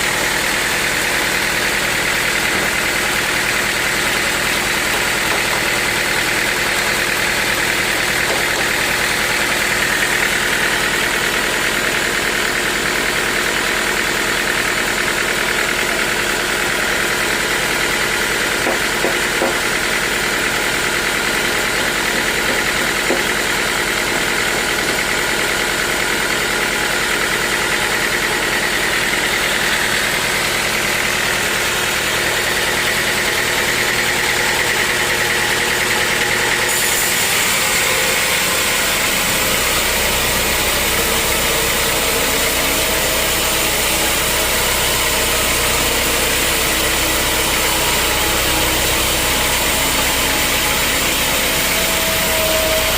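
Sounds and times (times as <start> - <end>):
sawmill machinery drone: 0.0 - 52.9
high machine whine: 15.8 - 52.9.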